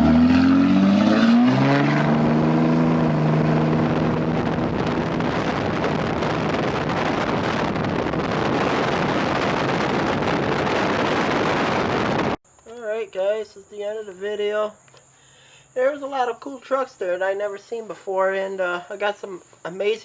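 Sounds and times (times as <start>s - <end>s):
truck engine revving: 0.0s - 12.3s
loud rushing noise: 0.0s - 12.4s.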